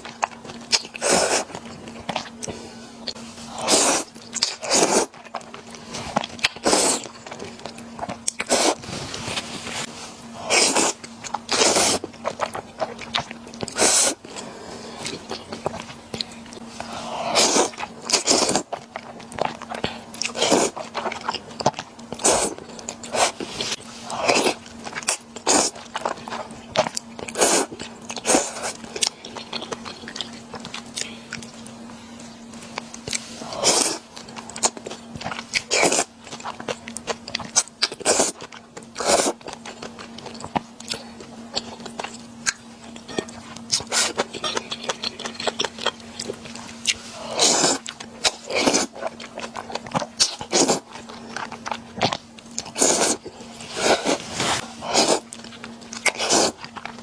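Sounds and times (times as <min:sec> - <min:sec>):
faint steady hum: 0:00.0 - 0:57.0
wet chewing and biting: 0:32.5 - 0:57.0.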